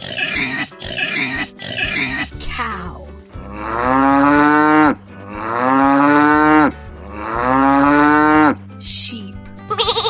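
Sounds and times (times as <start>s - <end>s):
cow mooing: 3.4s - 8.6s.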